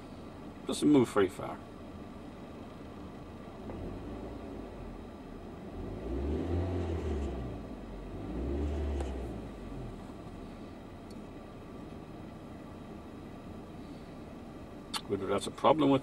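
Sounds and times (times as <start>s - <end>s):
car engine revving from idle: 3.5s - 10.8s.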